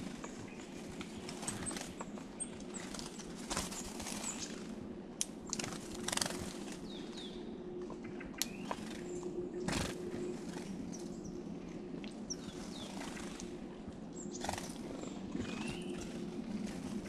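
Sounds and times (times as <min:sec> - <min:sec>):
songbirds chirping: 0:00.0 - 0:17.0
steady low hum: 0:00.0 - 0:17.0.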